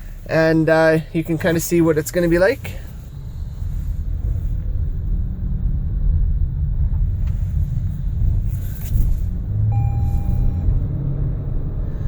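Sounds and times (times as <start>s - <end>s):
car engine rumble: 0.0s - 12.0s
road noise: 0.0s - 12.0s
electronic beep: 9.7s - 10.8s.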